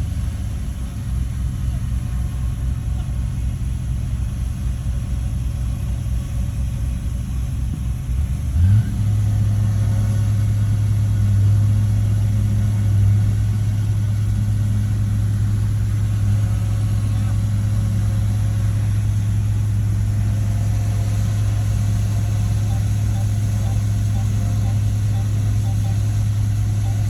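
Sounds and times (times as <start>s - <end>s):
bulldozer diesel engine revving: 7.7s - 27.0s.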